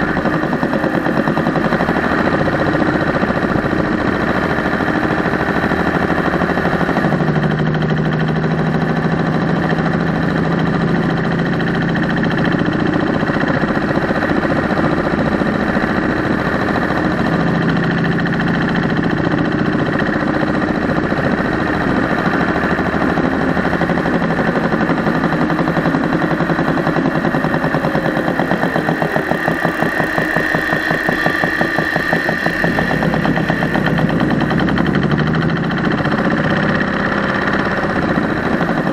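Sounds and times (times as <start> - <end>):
engine running: 0.0 - 38.9
fast engine ticking: 0.0 - 38.9.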